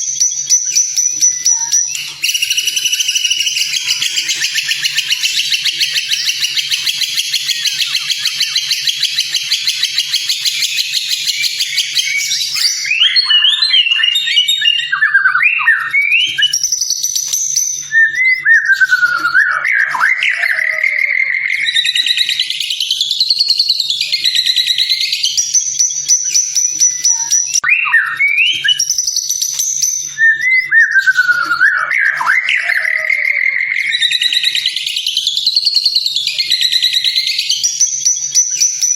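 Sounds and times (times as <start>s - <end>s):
bird singing: 0.0s - 38.9s
buzzy bird trill: 0.0s - 38.9s
whistled bird phrases: 0.0s - 38.9s.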